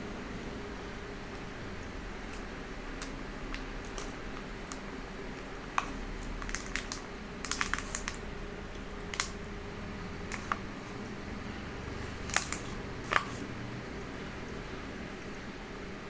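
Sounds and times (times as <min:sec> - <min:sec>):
person eating soft cake: 0:01.3 - 0:09.4.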